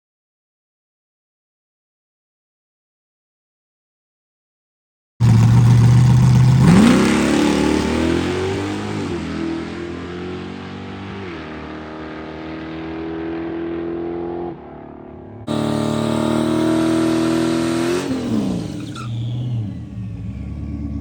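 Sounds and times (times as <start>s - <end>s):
vehicle engine running: 5.2s - 8.9s, 15.5s - 21.0s.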